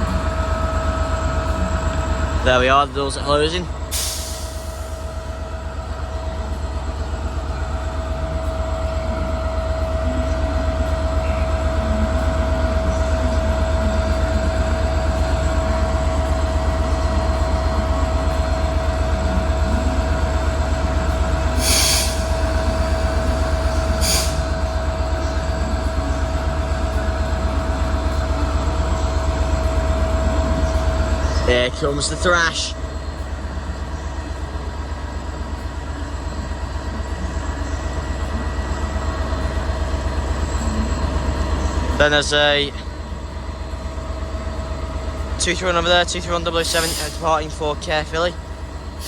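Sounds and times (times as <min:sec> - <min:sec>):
diesel locomotive engine idling: 0:00.0 - 0:49.0
air hisses: 0:21.6 - 0:22.3, 0:24.0 - 0:24.4.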